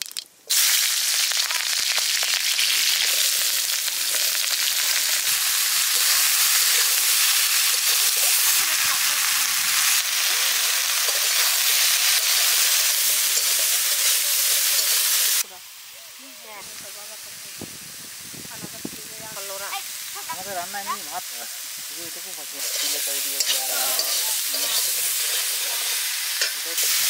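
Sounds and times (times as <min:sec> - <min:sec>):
vegetables sizzling in hot oil: 0:00.0 - 0:27.0
metal spatula turning food: 0:02.9 - 0:15.4, 0:22.6 - 0:27.0.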